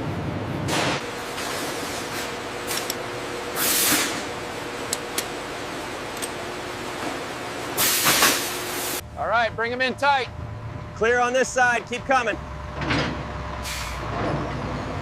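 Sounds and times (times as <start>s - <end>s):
industrial machine hum: 0.0s - 15.0s
air hissing out: 3.6s - 4.3s, 7.8s - 9.0s, 13.6s - 14.0s.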